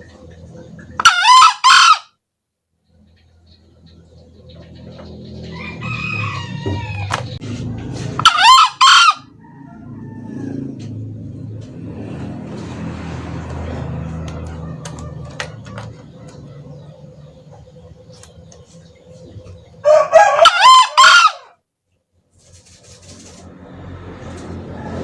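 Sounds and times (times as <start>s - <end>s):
junglefowl cock crowing: 1.0s - 2.2s, 5.4s - 7.4s, 8.0s - 11.0s, 13.9s - 16.4s, 19.8s - 21.6s
steady low hum: 15.6s - 20.2s.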